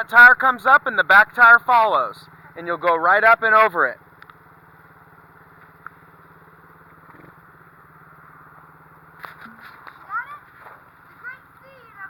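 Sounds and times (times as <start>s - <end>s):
motorbike engine idling: 0.0s - 12.0s.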